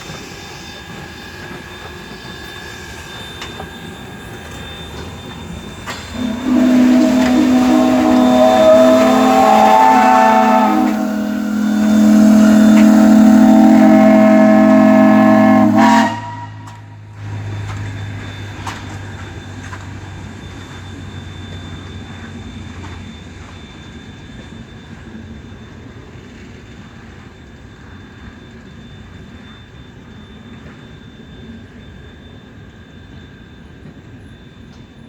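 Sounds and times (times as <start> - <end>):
low hum: 6.1 - 15.8.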